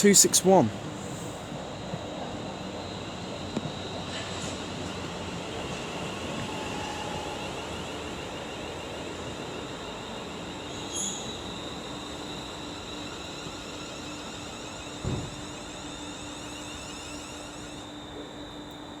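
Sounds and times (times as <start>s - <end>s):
train hum: 0.0s - 19.0s
wheel squeal: 6.4s - 18.1s.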